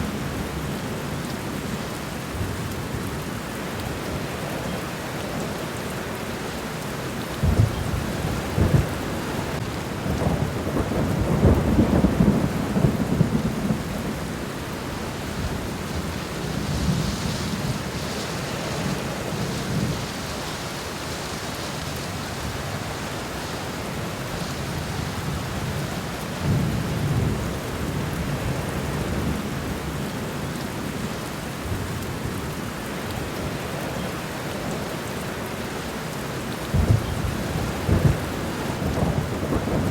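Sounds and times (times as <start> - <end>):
steady rain falling: 0.0 - 39.9
rolling thunder rumbling: 7.4 - 20.2, 36.7 - 39.9.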